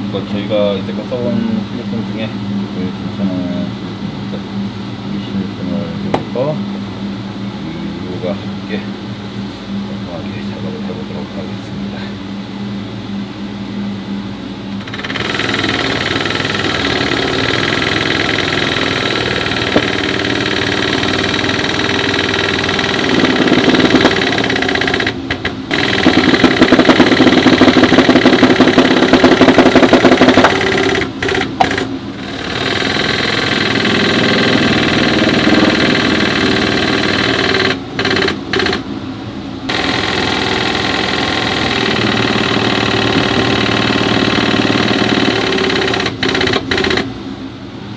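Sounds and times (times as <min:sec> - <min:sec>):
motor-driven machine running: 0:14.6 - 0:47.4
fast machine rattle: 0:14.7 - 0:38.9, 0:39.7 - 0:47.2.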